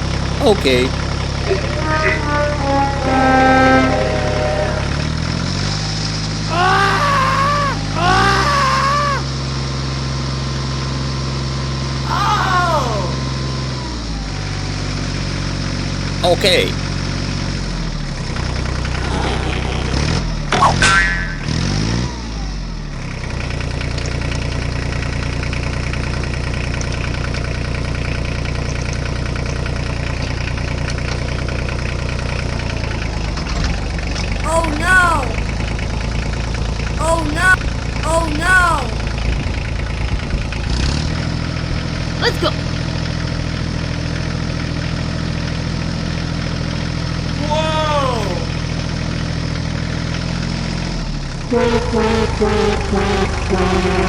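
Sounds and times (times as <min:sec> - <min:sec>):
wavering siren wail: 0:51.5 - 0:54.0.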